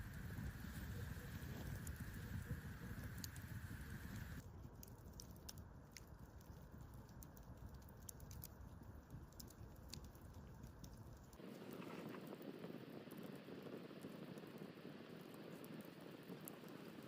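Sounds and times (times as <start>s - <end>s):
low wind rumble: 0.0s - 4.4s, 6.5s - 17.0s
wood fire crackling: 0.0s - 17.0s.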